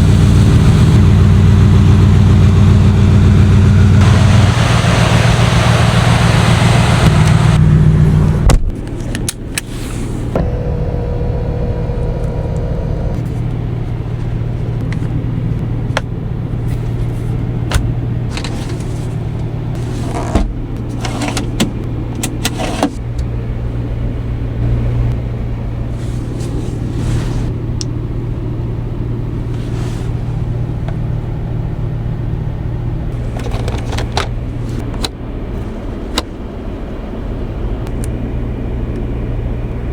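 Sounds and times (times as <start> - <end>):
car engine revving then idling: 0.0 - 8.5, 10.3 - 17.0.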